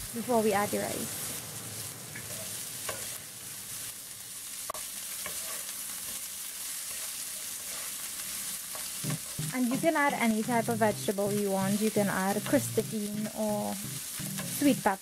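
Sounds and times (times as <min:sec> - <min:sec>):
vegetables sizzling in hot oil: 0:00.0 - 0:15.0
wooden spatula scraping a wok: 0:02.2 - 0:03.9, 0:04.7 - 0:10.5, 0:14.0 - 0:14.8.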